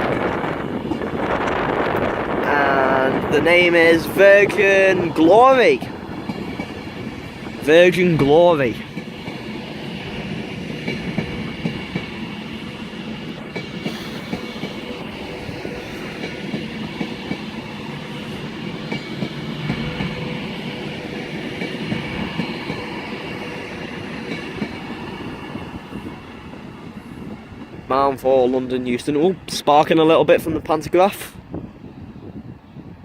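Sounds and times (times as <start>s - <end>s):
train rumble: 0.0s - 33.0s
train wheels clacking over rail joints: 13.3s - 25.6s.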